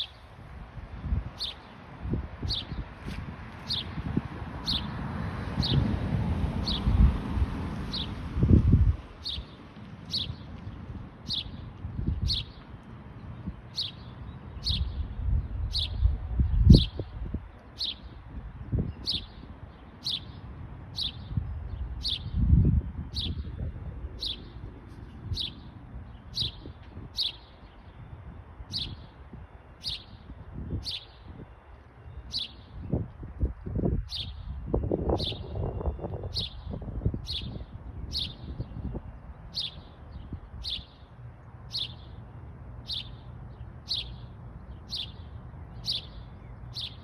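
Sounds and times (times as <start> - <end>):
low rumble on microphone: 5.5 - 13.6, 14.6 - 19.6, 21.1 - 27.2.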